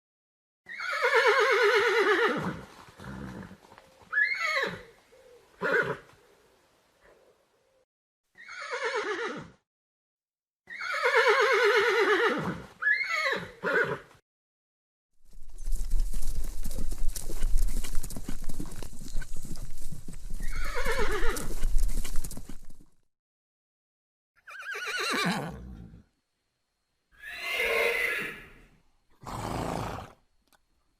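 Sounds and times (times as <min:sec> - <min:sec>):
horse whinnying: 0:00.7 - 0:04.9, 0:05.6 - 0:06.1, 0:08.4 - 0:09.6, 0:10.7 - 0:14.1, 0:20.4 - 0:21.7, 0:24.4 - 0:26.0, 0:27.2 - 0:30.2
horse snorting: 0:02.2 - 0:03.7, 0:29.2 - 0:30.2
horse hooves clip-clopping: 0:02.4 - 0:05.1, 0:15.2 - 0:23.0.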